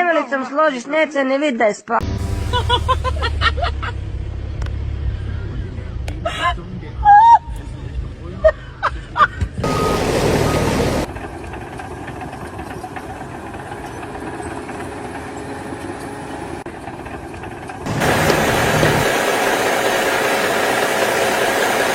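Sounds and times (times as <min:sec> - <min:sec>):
machine engine running: 0:02.0 - 0:05.0, 0:09.6 - 0:21.9.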